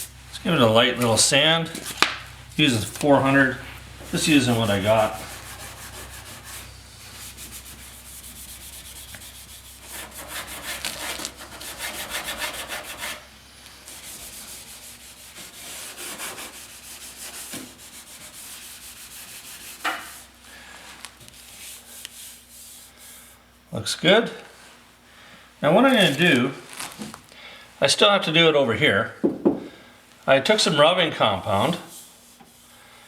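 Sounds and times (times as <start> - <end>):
sandpaper scratching on car panel: 4.0 - 13.2, 13.8 - 20.4.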